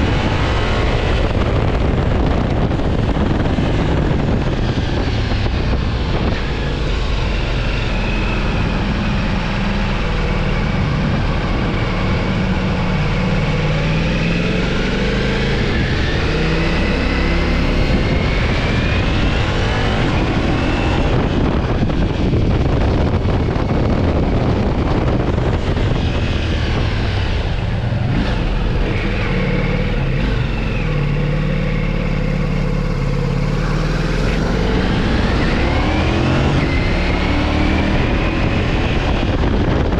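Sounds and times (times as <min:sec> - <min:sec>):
motorcycle engine revving: 0:00.0 - 0:39.9
wind on microphone: 0:00.0 - 0:39.9.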